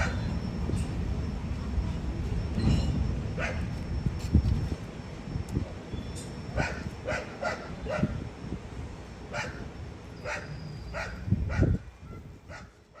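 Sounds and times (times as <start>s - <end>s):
dog barking: 6.6s - 8.1s, 9.3s - 9.6s, 10.2s - 11.8s, 12.5s - 13.0s.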